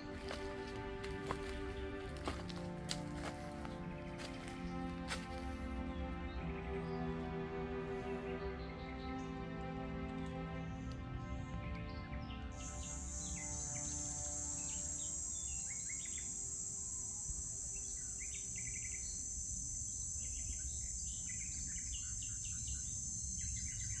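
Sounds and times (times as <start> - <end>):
songbirds chirping: 0.0 - 24.0
high-pitched insect chorus: 12.5 - 24.0.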